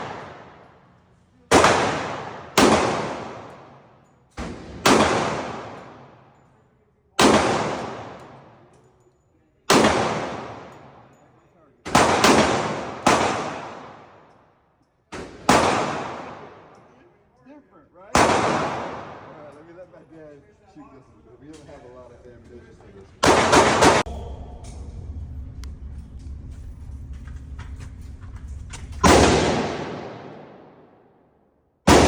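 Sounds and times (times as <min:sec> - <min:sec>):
faint gunshots: 0:00.0 - 0:00.7, 0:01.5 - 0:03.8, 0:04.4 - 0:06.2, 0:07.2 - 0:08.6, 0:09.7 - 0:10.9, 0:11.9 - 0:14.2, 0:15.2 - 0:16.7, 0:18.2 - 0:19.5, 0:23.2 - 0:24.2, 0:29.0 - 0:30.9
gunshots echoing: 0:00.0 - 0:00.9, 0:01.5 - 0:06.4, 0:07.2 - 0:08.6, 0:09.7 - 0:11.1, 0:11.9 - 0:14.3, 0:15.1 - 0:16.9, 0:18.1 - 0:19.6, 0:23.2 - 0:24.4, 0:29.0 - 0:31.0.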